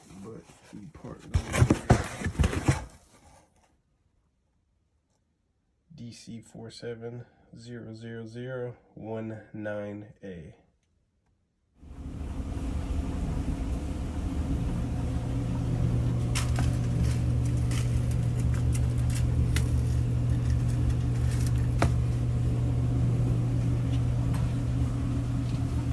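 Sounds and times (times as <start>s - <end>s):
electric dryer humming: 11.8s - 25.9s.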